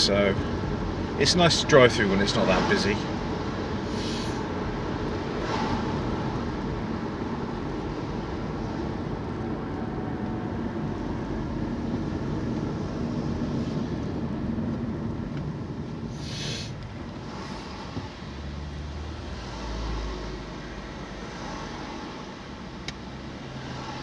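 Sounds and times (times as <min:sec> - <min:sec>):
car engine and road noise: 0:00.0 - 0:24.0
short hiss: 0:03.9 - 0:04.4, 0:16.1 - 0:16.8.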